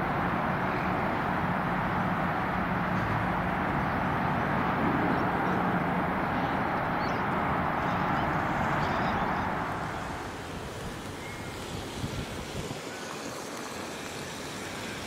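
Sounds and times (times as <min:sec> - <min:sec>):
low motor hum: 0:00.0 - 0:15.0
steel wheels on rails: 0:06.8 - 0:15.0.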